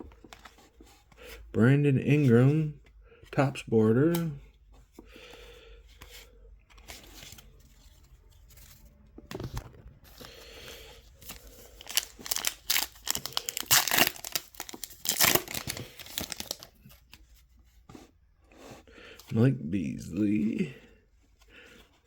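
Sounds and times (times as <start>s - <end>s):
wrapper tearing and crinkling: 11.3s - 16.9s.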